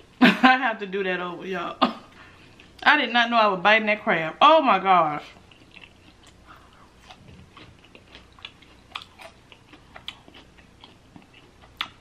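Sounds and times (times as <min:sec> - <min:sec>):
person chewing chicken: 0:05.3 - 0:12.0.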